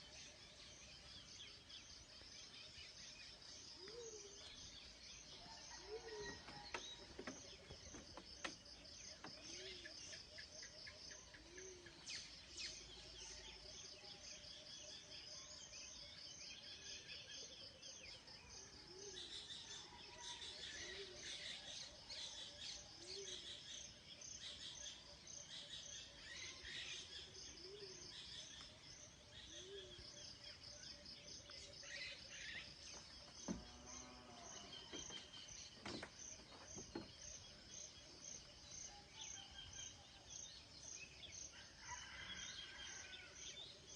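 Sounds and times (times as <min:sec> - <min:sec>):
insect chirping: 0:20.6 - 0:43.9.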